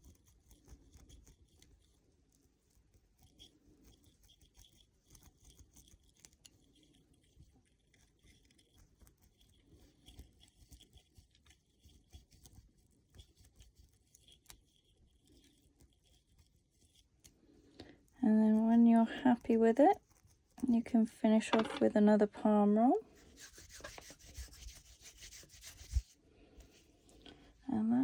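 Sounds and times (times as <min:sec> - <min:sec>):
crochet hook scratching through hair: 0:00.0 - 0:17.3, 0:23.0 - 0:27.4.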